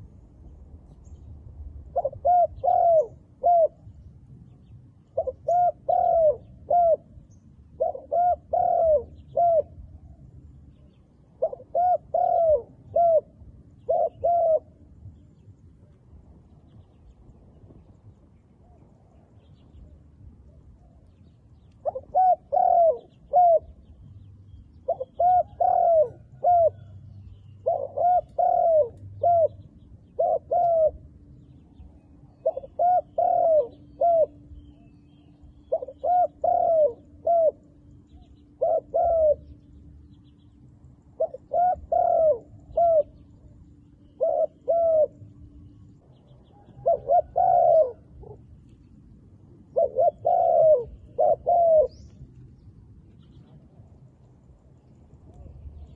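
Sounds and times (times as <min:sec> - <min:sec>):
dove cooing: 0:01.8 - 0:03.9, 0:05.0 - 0:10.2, 0:11.2 - 0:15.0, 0:21.8 - 0:48.7, 0:49.6 - 0:53.9.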